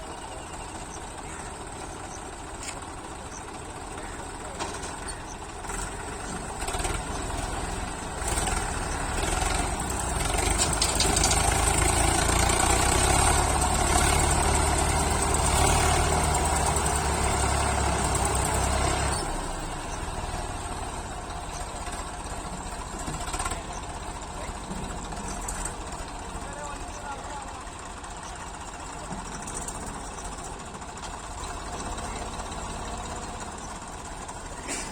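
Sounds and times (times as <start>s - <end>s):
diesel tractor engine running: 0.0s - 34.9s.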